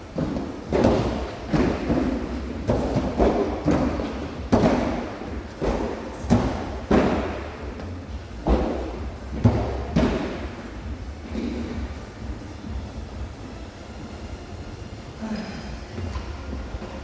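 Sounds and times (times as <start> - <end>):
workout equipment thudding on floor: 0.2 - 7.5.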